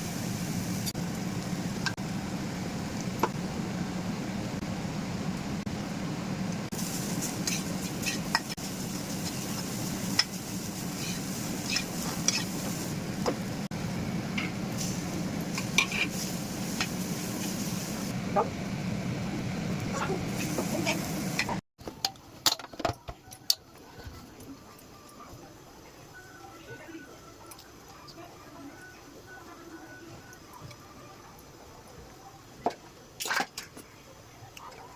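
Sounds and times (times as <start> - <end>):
food sizzling in a pan: 6.7 - 13.0, 14.7 - 18.2, 20.0 - 21.6.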